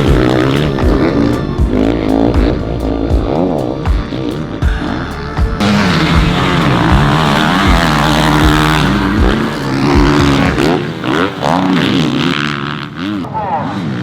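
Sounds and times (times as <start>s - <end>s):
motorbike engine revving hard: 0.0s - 14.0s.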